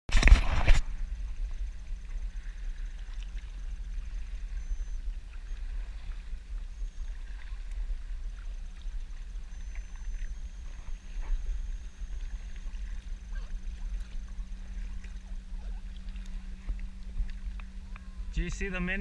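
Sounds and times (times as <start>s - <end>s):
low steady rumble: 0.1s - 19.0s
paddle splashes: 0.1s - 19.0s
water lapping and dripping: 1.1s - 19.0s.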